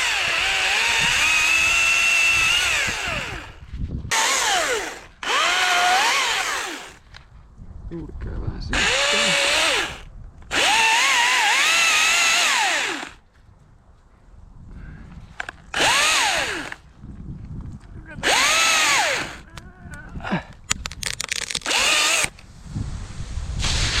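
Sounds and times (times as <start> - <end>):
electric chainsaw revving: 0.0 - 7.1, 8.7 - 13.2, 15.7 - 16.8, 18.2 - 19.5, 21.2 - 22.4.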